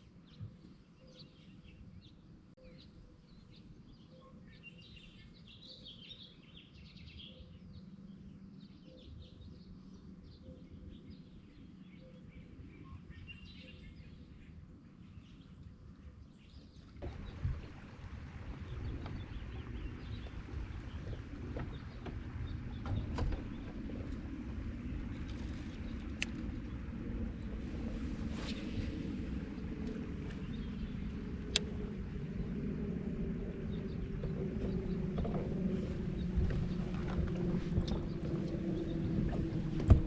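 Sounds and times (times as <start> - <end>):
birds chirping: 0.1 - 40.0
low rumble: 17.0 - 40.0.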